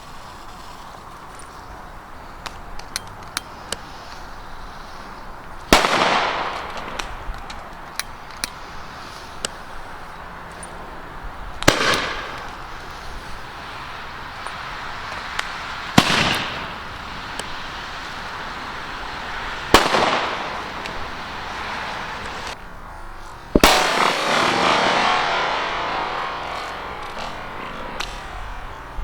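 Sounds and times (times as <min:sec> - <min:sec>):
firecracker bangs: 0:05.7 - 0:09.7, 0:11.6 - 0:22.6, 0:23.5 - 0:29.0.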